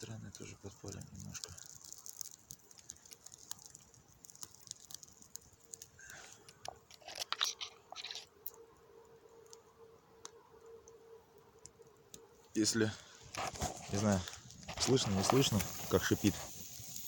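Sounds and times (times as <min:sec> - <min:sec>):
wet wood whistling and hissing: 0:00.0 - 0:08.6, 0:12.8 - 0:17.0
campfire crackling and popping: 0:00.0 - 0:17.0.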